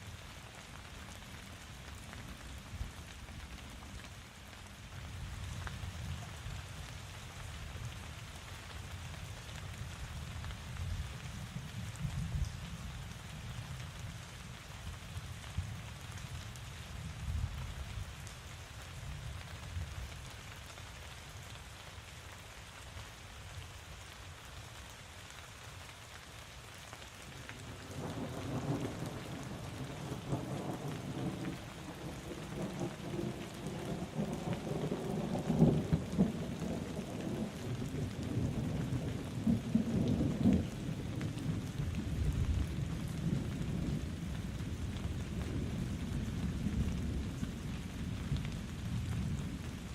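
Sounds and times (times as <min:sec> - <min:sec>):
steady rain falling: 0:00.0 - 0:49.9
thunder rumbling: 0:27.6 - 0:49.9.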